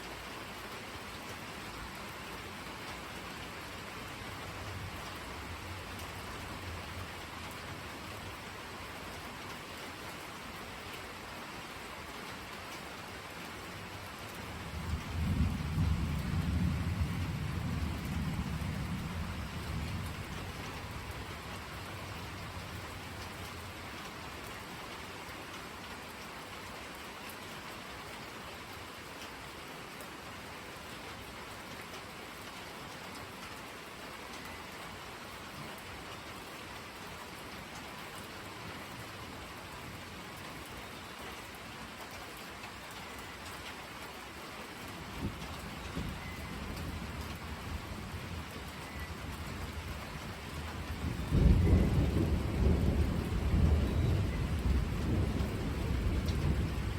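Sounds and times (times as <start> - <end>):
rain falling on surfaces: 0.0 - 56.9
thunder rumbling: 14.7 - 21.1, 45.2 - 56.9.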